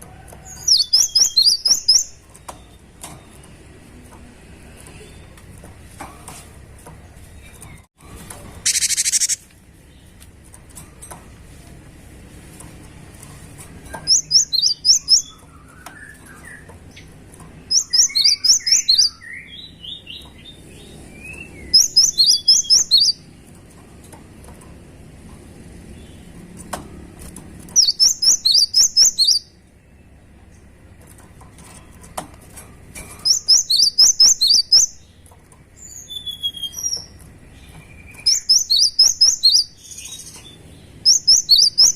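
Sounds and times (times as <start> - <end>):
bird singing high repeated notes: 8.6 - 9.4, 33.3 - 35.0, 38.1 - 40.3, 41.1 - 41.9.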